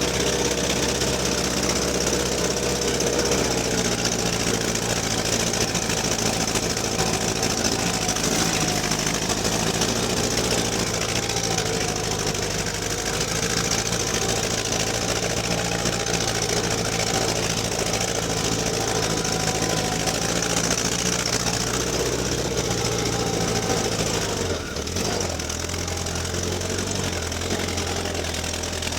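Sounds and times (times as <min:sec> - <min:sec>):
engine running: 0:00.0 - 0:28.9.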